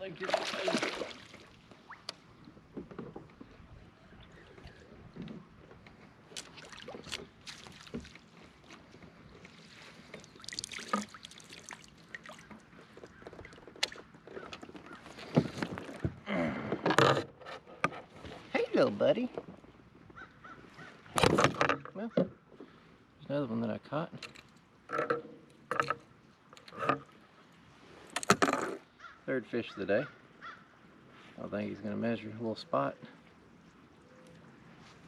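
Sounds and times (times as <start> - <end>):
water splashing: 0.0 - 2.4, 6.3 - 8.7, 9.5 - 14.1.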